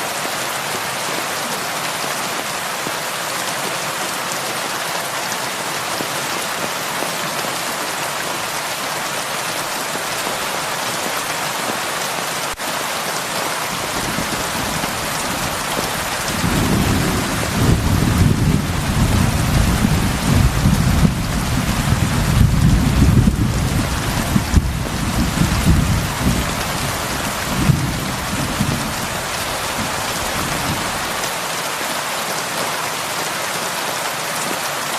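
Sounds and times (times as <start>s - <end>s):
heavy rain hissing: 0.0s - 34.9s
low rumble of thunder: 13.9s - 31.1s.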